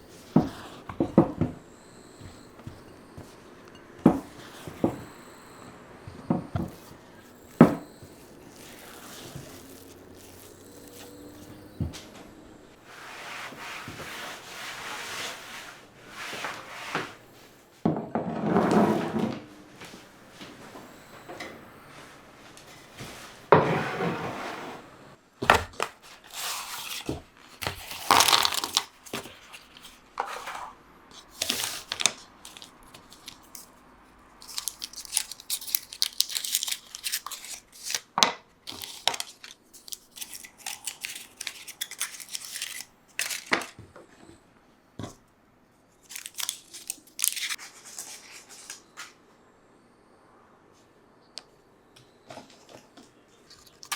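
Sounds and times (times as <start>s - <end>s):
packaging rustling and tearing: 6.7s - 11.7s, 25.6s - 30.5s, 31.1s - 33.8s, 34.4s - 43.8s, 46.0s - 48.9s.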